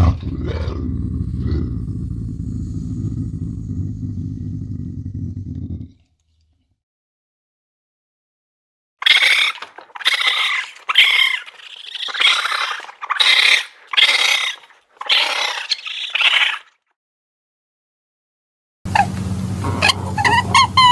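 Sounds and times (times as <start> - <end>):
animal harsh high calls: 9.0 - 16.7.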